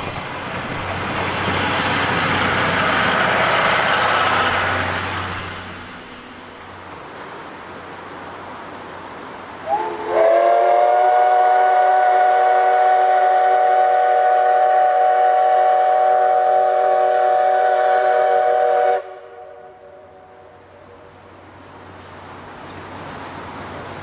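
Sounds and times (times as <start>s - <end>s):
steam locomotive whistle: 9.6s - 20.4s.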